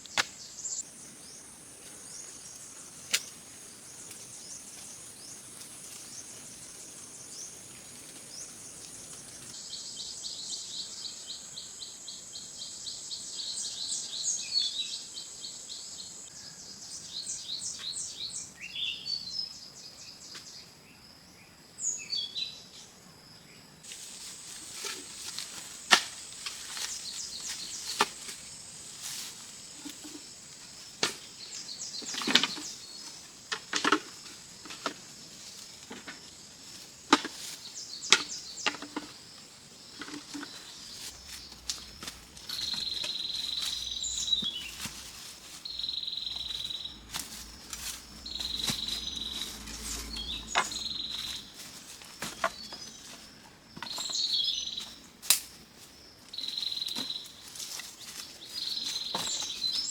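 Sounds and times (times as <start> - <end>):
high insect drone: 20.8 - 59.9
high insect buzz: 23.9 - 59.9
birds chirping: 26.2 - 28.9, 29.6 - 35.2, 35.8 - 55.1, 56.3 - 59.9.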